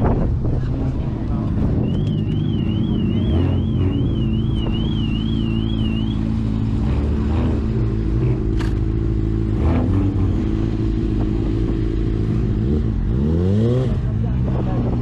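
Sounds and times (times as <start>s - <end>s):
car engine running steadily: 0.0s - 15.0s
high warbling electronic tone: 1.4s - 7.5s.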